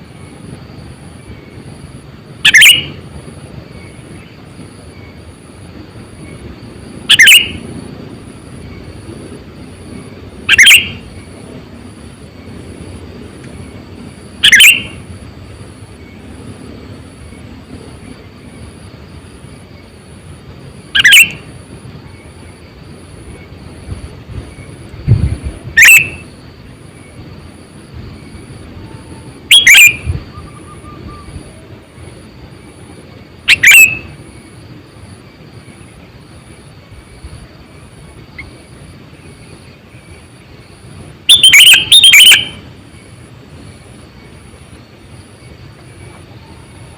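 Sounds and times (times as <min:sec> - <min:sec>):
steady hiss: 0:00.0 - 0:46.9
bird calling: 0:02.4 - 0:05.2, 0:06.2 - 0:07.8, 0:09.9 - 0:11.6, 0:13.4 - 0:15.2, 0:20.9 - 0:22.6, 0:25.6 - 0:26.4, 0:28.0 - 0:32.2, 0:33.4 - 0:34.5, 0:38.2 - 0:40.3, 0:41.2 - 0:43.2, 0:45.8 - 0:46.9.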